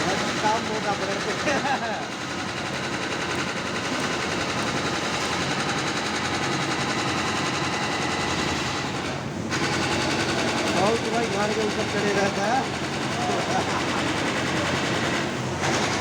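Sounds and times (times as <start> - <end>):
steady machine hum: 0.0 - 16.0
wire saw rattling on concrete: 9.5 - 16.0.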